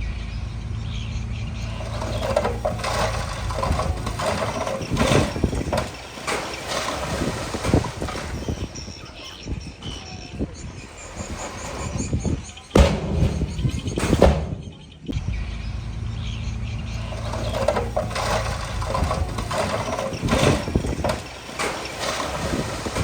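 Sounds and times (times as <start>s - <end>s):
diesel engine running: 0.0s - 23.0s
loud knocks: 1.7s - 8.6s, 11.0s - 15.2s, 17.1s - 23.0s.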